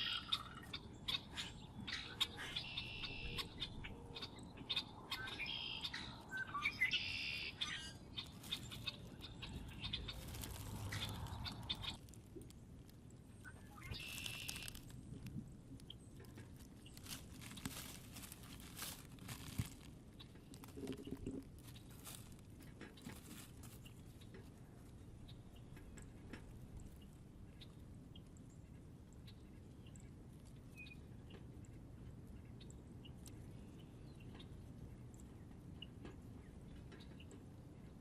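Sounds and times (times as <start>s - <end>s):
bird chirp: 0.0s - 12.1s, 13.4s - 15.2s, 30.7s - 31.5s
birds feeding clicks and taps: 0.0s - 38.0s.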